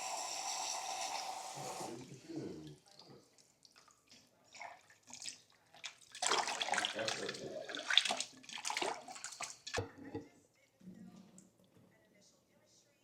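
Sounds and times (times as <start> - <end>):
running water: 0.0 - 10.2
water splashing in a sink: 2.7 - 10.2.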